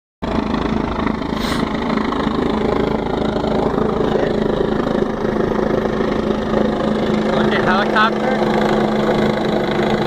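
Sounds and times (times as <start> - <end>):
helicopter engine and rotor: 0.2 - 10.0
brief hiss: 1.4 - 1.6.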